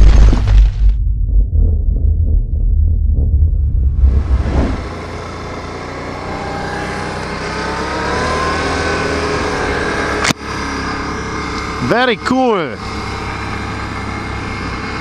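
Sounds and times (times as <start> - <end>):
bass-heavy music: 0.0 - 5.2
atv engine speeding up: 3.8 - 15.0
wind and trail noise: 3.9 - 15.0.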